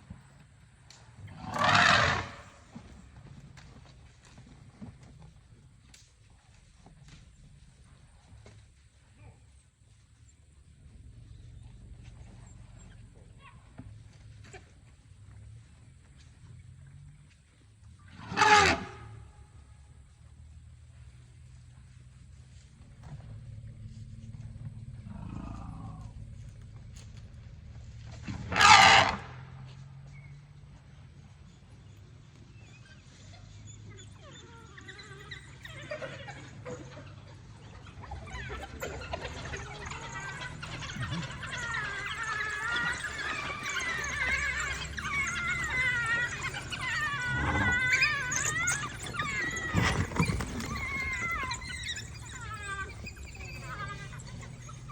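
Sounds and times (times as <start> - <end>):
elephant trumpeting: 1.3 - 2.7, 18.1 - 19.3, 28.3 - 29.5, 37.9 - 54.9
faint high animal call: 1.3 - 2.7, 18.1 - 20.1, 23.0 - 27.4, 28.4 - 29.5, 31.5 - 54.9.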